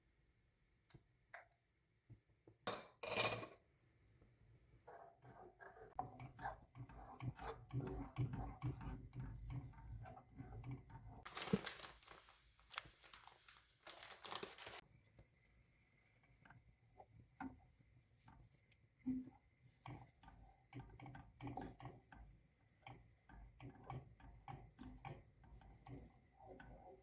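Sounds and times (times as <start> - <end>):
crinkling and rustling: 11.2 - 14.8.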